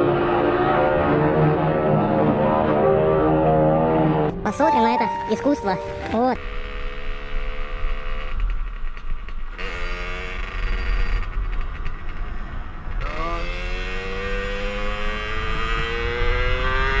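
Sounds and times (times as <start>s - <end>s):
motorcycle engine accelerating: 6.4s - 17.0s.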